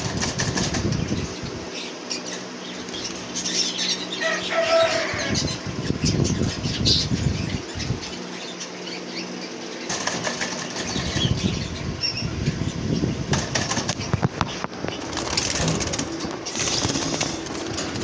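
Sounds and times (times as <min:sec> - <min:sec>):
parrots flapping wings: 0:00.0 - 0:01.4, 0:09.9 - 0:11.6, 0:13.3 - 0:18.0.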